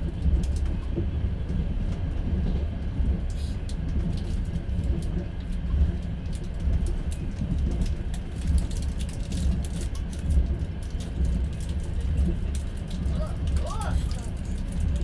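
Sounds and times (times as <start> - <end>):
train rumbling: 0.0 - 15.0
light clicks and rattles: 6.3 - 15.0.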